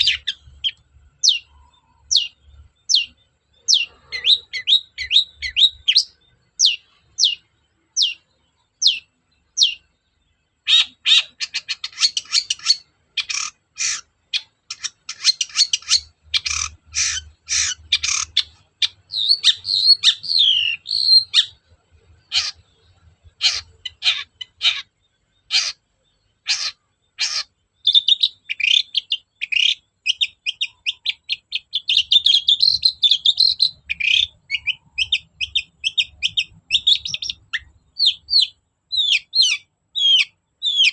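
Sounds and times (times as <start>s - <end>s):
bird singing: 0.0s - 40.9s.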